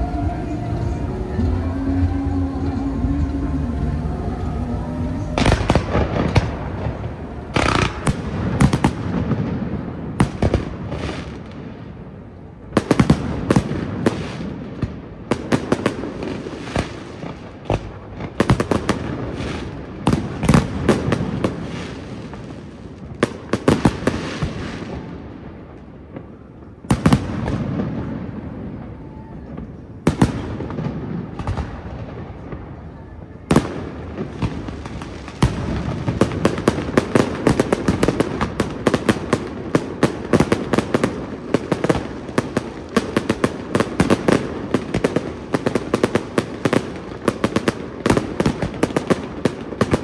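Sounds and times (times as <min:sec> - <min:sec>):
echoing rumble: 0:00.0 - 0:15.2.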